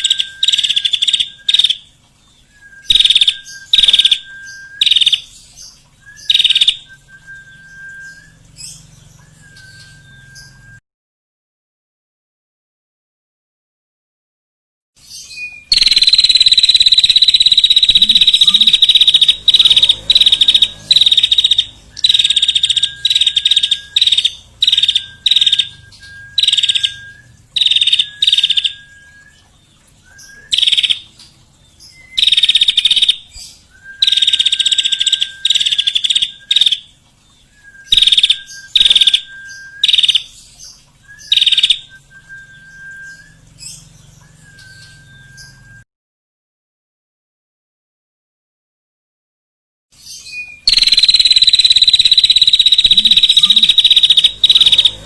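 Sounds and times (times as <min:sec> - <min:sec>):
songbird buzzy trills: 0:00.0 - 0:10.8, 0:15.0 - 0:45.8, 0:50.0 - 0:55.0
lower whistled bird notes: 0:02.4 - 0:05.3, 0:06.0 - 0:10.8, 0:15.4 - 0:31.0, 0:33.7 - 0:36.8, 0:37.4 - 0:40.3, 0:41.0 - 0:45.8, 0:50.3 - 0:55.0.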